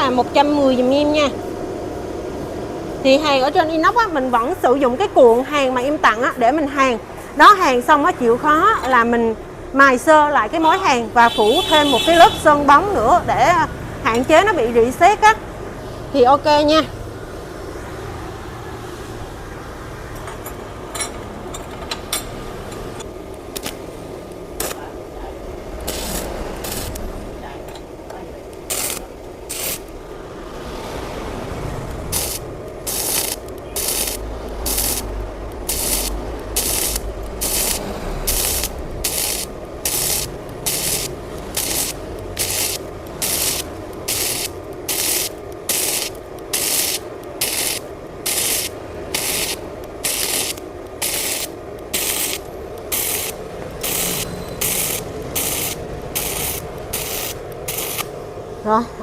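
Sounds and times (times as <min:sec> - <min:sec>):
welding arc crackling: 0:09.9 - 0:13.1, 0:22.8 - 0:30.6, 0:31.3 - 0:58.5
welder humming: 0:22.6 - 0:58.6.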